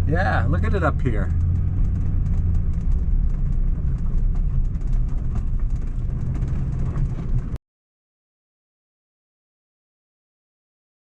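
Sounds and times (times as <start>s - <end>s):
stones ticking under tires: 0.0s - 7.6s
van engine and tires rumbling: 0.0s - 7.6s.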